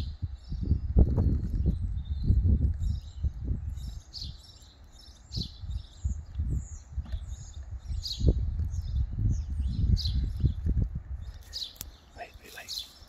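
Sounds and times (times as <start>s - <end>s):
low rumble in gusts: 0.0s - 12.4s
small birds chirping: 0.0s - 13.0s.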